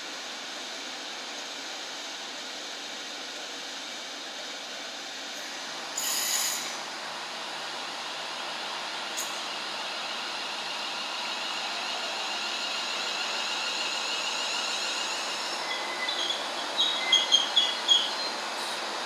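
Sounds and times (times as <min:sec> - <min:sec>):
train wheels on track: 0:00.2 - 0:19.0
high-pitched wheel squeals: 0:13.6 - 0:18.4.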